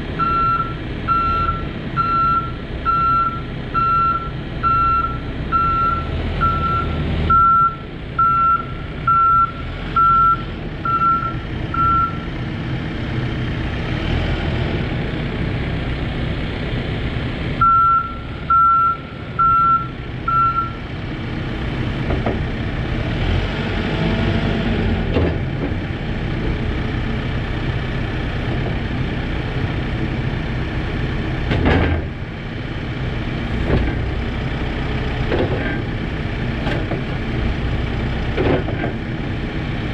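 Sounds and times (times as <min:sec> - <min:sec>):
diesel engine running: 0:00.0 - 0:39.9
backup alarm beeping: 0:00.2 - 0:12.2, 0:17.6 - 0:20.8
sharp clunk: 0:31.5 - 0:32.1, 0:38.4 - 0:39.0.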